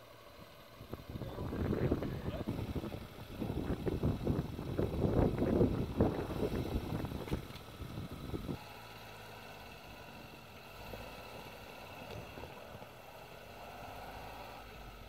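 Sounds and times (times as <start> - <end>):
off-road vehicle engine running: 0.0 - 15.0
wind buffeting microphone: 0.7 - 8.6.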